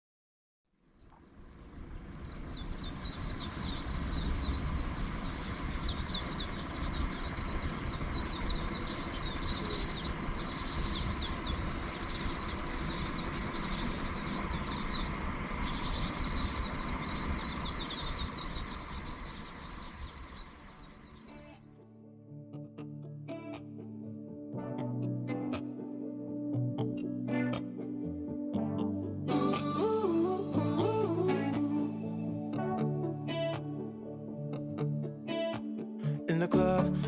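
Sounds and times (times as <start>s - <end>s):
flock of small birds chirping: 0.8s - 21.8s
steady low rumble: 1.4s - 21.3s.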